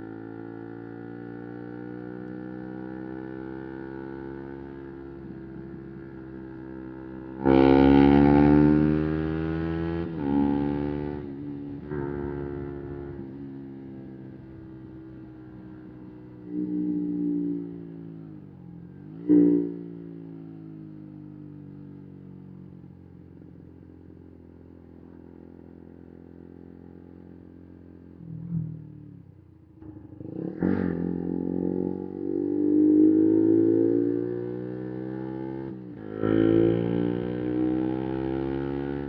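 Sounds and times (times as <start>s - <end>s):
motorcycle engine revving: 0.0s - 20.9s, 26.8s - 39.0s.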